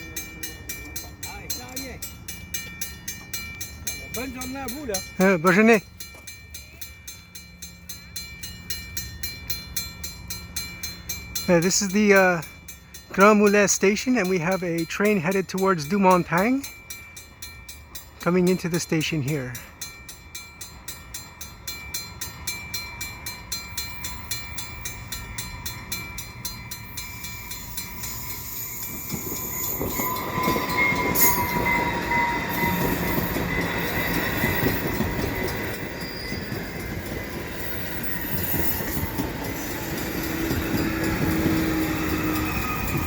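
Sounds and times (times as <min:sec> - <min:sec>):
level-crossing bell ringing: 0:00.0 - 0:43.0
train running noise: 0:00.0 - 0:43.0
train wheels squealing: 0:23.7 - 0:43.0.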